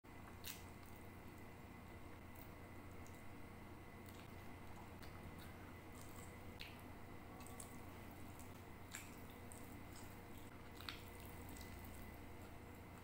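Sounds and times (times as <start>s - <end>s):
low hum and hiss: 0.1s - 13.0s
wet mouth sounds chewing: 7.4s - 12.6s.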